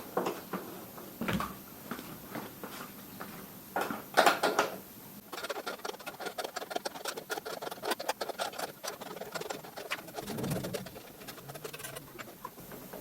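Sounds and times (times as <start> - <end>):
rapid small clicks: 5.3 - 12.6.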